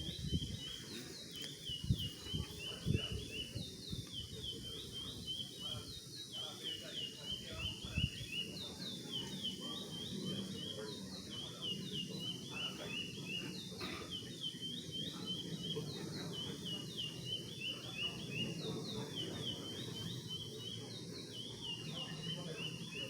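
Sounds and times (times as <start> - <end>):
finch singing whistled notes: 0.0 - 23.0.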